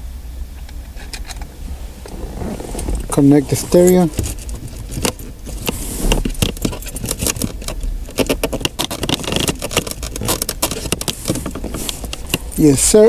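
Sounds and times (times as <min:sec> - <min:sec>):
plastic connectors clicking and rattling: 0:06.3 - 0:12.7.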